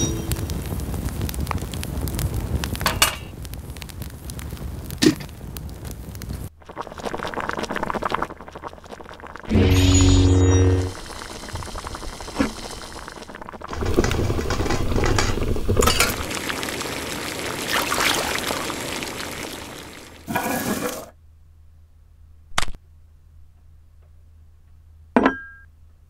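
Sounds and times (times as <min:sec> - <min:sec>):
water bubbling at a boil: 0:00.4 - 0:09.5, 0:11.0 - 0:21.1.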